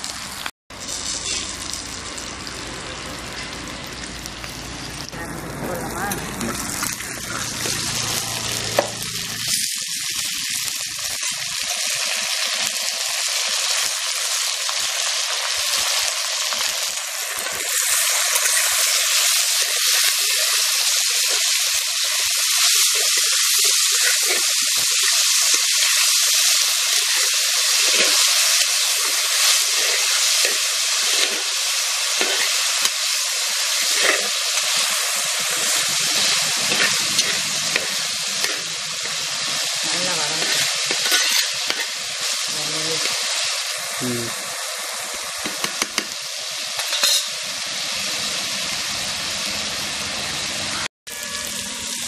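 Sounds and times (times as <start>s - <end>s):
food sizzling in oil: 0.0s - 52.0s
spatula scraping a pot: 40.3s - 41.9s.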